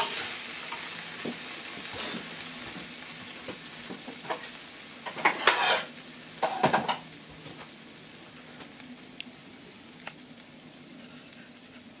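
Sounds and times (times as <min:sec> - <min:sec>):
food sizzling in a frying pan: 0:00.0 - 0:12.0
small ticks: 0:11.2 - 0:11.5.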